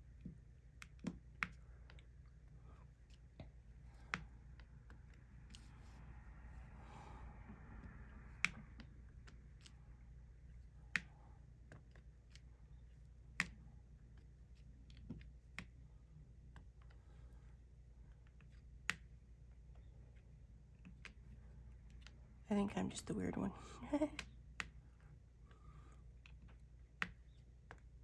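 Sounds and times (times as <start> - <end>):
light plastic ticks and taps: 13.3 - 14.2.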